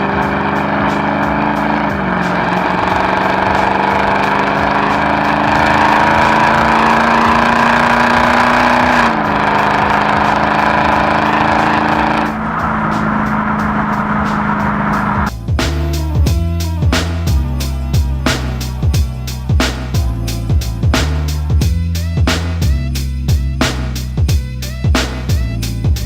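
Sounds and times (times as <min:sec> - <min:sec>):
car engine under load: 0:00.0 - 0:16.1.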